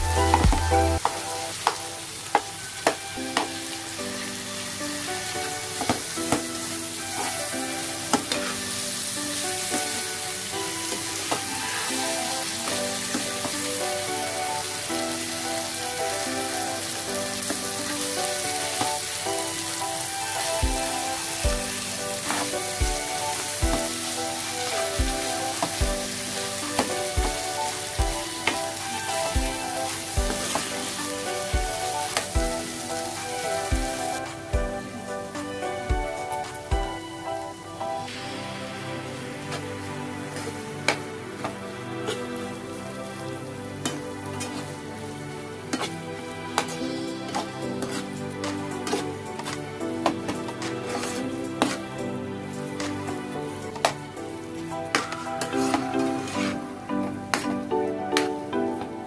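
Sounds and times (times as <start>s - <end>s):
steady beat: 0.0s - 1.2s, 28.0s - 28.3s, 33.7s - 37.1s
background music: 0.0s - 59.0s
onions and potato sizzling: 0.0s - 59.0s
steel spoon scraping and tapping pan: 45.7s - 45.9s, 46.6s - 51.8s, 55.0s - 56.6s, 57.3s - 57.6s.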